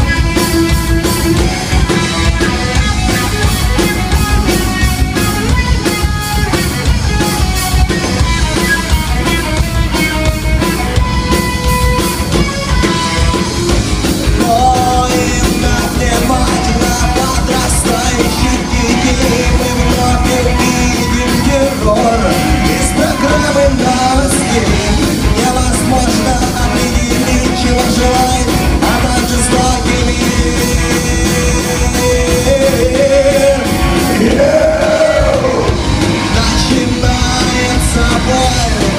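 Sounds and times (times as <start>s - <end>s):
rock band playing live: 0.0s - 38.9s
person singing: 14.2s - 38.9s.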